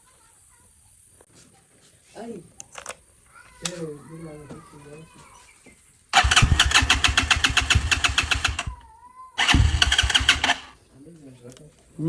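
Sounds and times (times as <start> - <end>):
motorcycle engine cranking: 6.2 - 8.8, 9.4 - 10.8.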